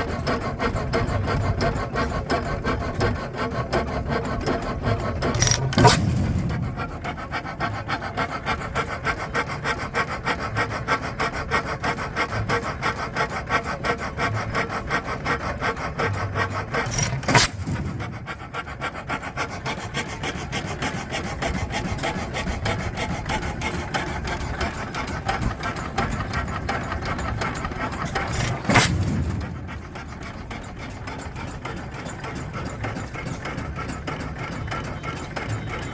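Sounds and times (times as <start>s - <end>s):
stationary engine clattering: 0.0s - 35.9s
sharp clicks: 4.4s - 6.7s.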